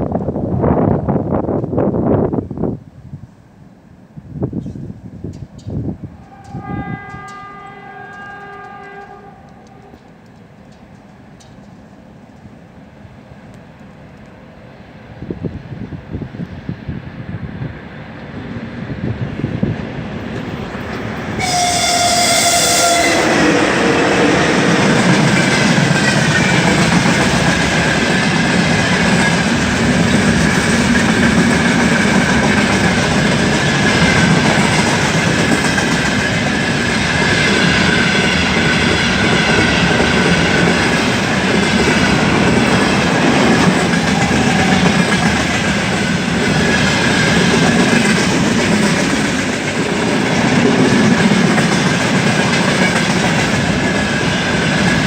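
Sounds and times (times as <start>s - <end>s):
high ring from train wheels: 6.2s - 9.9s, 20.6s - 27.4s, 33.8s - 47.5s
freight train wheels clattering: 20.2s - 55.0s.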